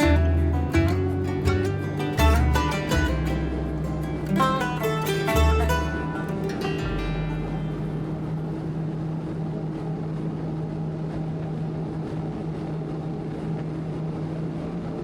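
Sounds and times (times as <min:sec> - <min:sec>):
jet ski engine drone: 0:05.9 - 0:15.0.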